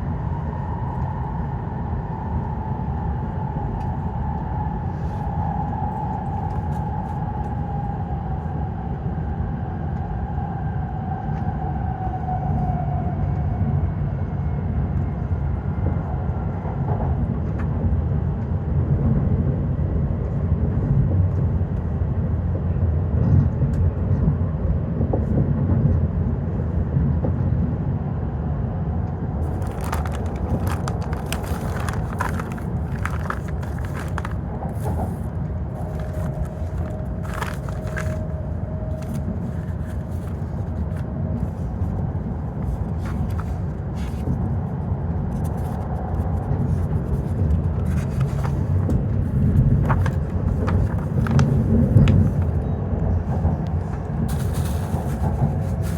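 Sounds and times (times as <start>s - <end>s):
train interior rumble: 0.0s - 55.9s.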